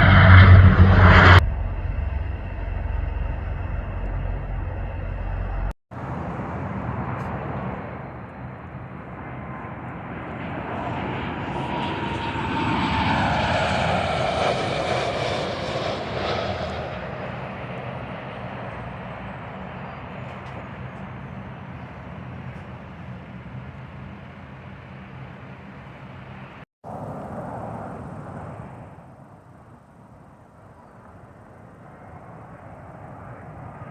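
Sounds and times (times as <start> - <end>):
low rumble: 0.0 - 5.8
jet airliner flying past: 0.0 - 29.8, 30.6 - 33.9.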